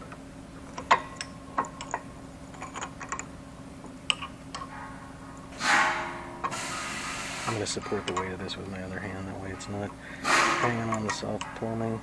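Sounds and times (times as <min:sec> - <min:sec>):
metal parts clicking and knocking: 0:00.0 - 0:03.3, 0:04.1 - 0:06.6, 0:07.5 - 0:08.4, 0:09.6 - 0:11.6
steady low hum: 0:00.0 - 0:12.0.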